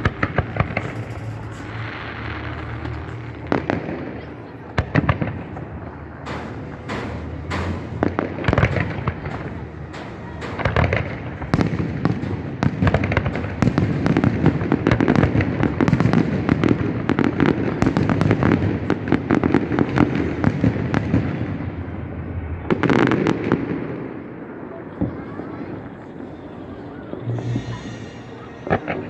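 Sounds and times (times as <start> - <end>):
loud firework burst: 0.0 - 21.7, 26.8 - 29.0
fireworks crackling and banging: 0.0 - 29.0
low rumble: 27.1 - 29.0.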